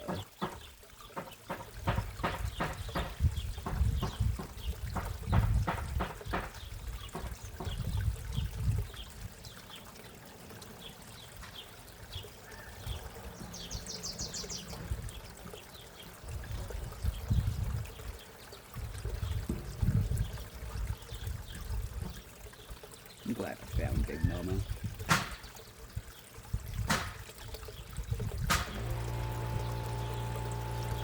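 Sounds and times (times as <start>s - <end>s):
pond water trickling: 0.0s - 31.0s
wind rumble on microphone: 2.4s - 9.0s, 16.3s - 18.0s, 18.8s - 22.2s, 23.7s - 25.1s, 26.5s - 27.2s, 27.8s - 28.7s
bird chirping: 11.6s - 14.8s.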